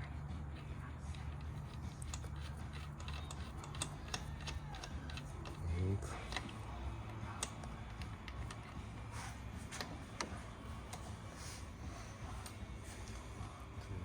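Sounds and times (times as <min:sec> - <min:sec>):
metal tools clicking and tapping: 0:00.0 - 0:05.6, 0:06.2 - 0:08.8
low steady hum: 0:00.0 - 0:14.0.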